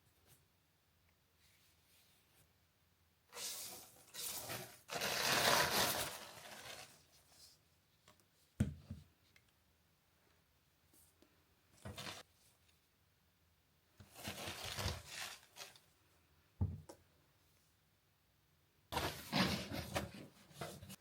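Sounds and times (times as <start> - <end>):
rustling tearing noise: 3.4 - 7.0, 14.1 - 15.8.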